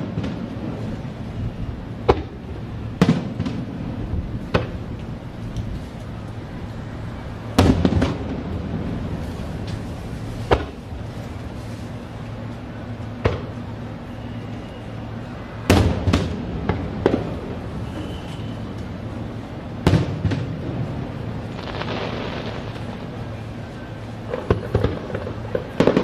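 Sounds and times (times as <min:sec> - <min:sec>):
firework shells bursting: 0:21.4 - 0:23.4.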